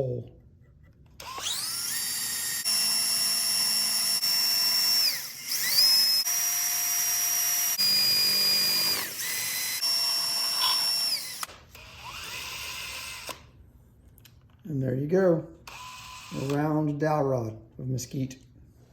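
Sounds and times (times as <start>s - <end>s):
power drill motor whine: 1.2s - 13.5s, 15.7s - 16.7s.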